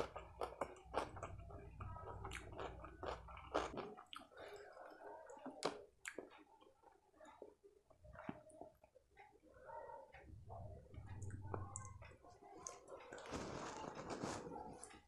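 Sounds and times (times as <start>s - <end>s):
close chewing: 0.0s - 7.6s
fingers squishing food: 0.0s - 9.0s.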